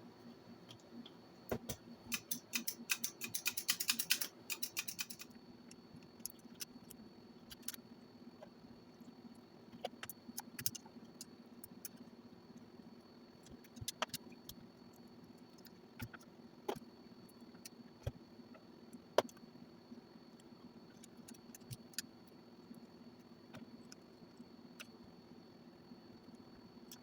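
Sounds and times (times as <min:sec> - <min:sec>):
light clicks and taps of tools: 0:00.7 - 0:07.8.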